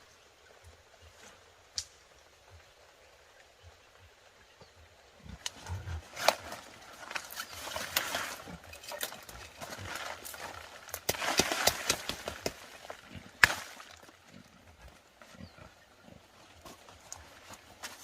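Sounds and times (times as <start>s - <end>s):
rustling: 5.3s - 14.4s
sharp cracks and knocks: 6.2s - 12.8s, 13.4s - 14.1s.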